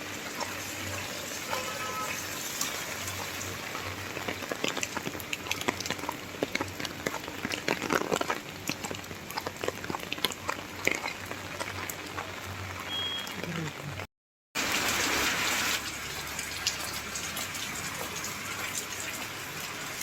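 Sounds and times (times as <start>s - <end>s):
rain falling: 0.0s - 20.0s
sharp ticks of raindrops: 0.4s - 13.9s.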